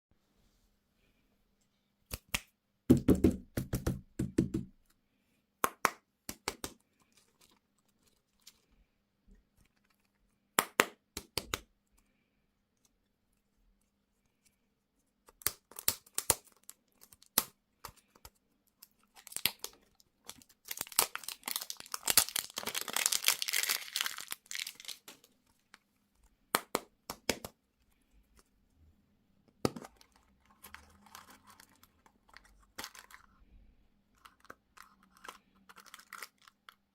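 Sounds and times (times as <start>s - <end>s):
plastic packaging crinkling: 19.0s - 25.7s, 29.9s - 33.4s, 34.2s - 36.9s.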